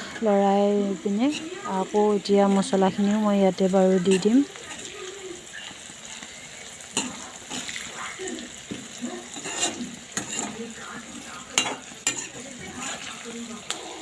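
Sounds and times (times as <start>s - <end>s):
chicken sizzling in oil: 0.0s - 14.0s
spatula scraping and clinking pan: 1.3s - 2.0s, 8.8s - 10.7s, 11.5s - 13.2s.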